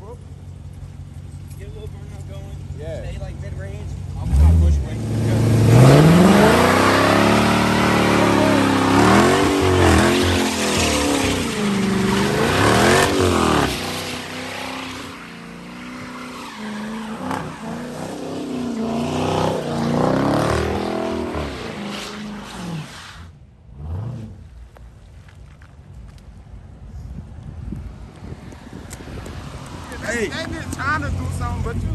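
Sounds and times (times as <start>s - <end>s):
car engine revving: 0.6s - 24.6s, 28.2s - 31.9s
tyres spinning on wet pavement: 5.0s - 23.3s, 28.6s - 31.9s.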